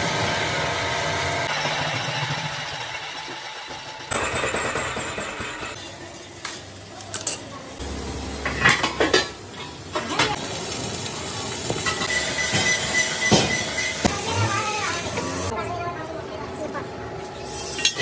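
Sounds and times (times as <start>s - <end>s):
machine noise: 0.0s - 5.8s
sharp metallic knocks: 4.1s - 5.8s.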